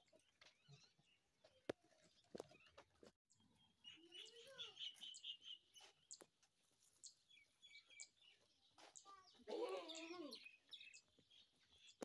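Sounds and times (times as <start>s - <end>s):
small birds chirping: 0.0s - 12.0s
goat bleating: 9.5s - 10.4s.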